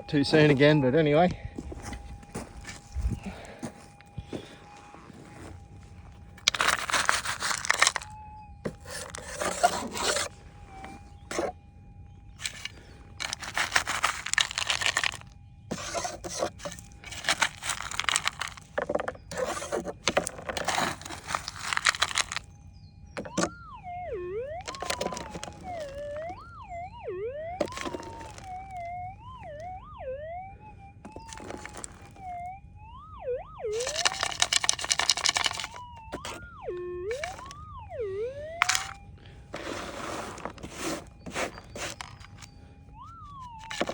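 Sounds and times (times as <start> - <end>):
pick scraping gravelly ground: 0.0 - 29.8, 31.0 - 32.5, 33.7 - 43.9
metal detector tone: 6.4 - 11.6, 12.3 - 22.4, 23.1 - 29.7, 31.0 - 32.4, 33.6 - 43.9.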